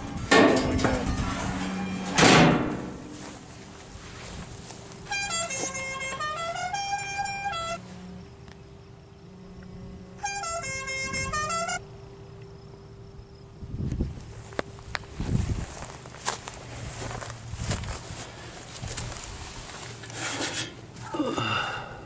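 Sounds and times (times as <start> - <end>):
low steady hum: 0.0 - 22.0
horn playing short tune: 1.0 - 2.2, 5.0 - 7.9, 10.2 - 11.9.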